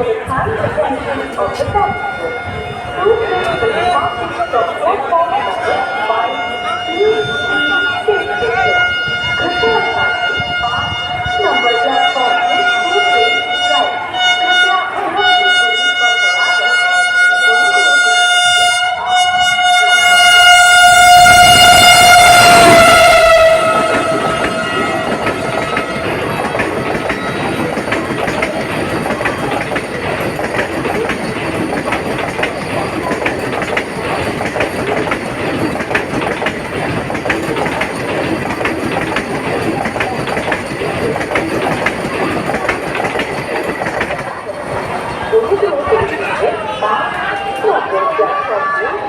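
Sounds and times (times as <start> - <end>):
train horn: 1.0 - 29.8
train rushing past: 18.5 - 48.8
wheels clicking over rail joints: 21.1 - 45.3.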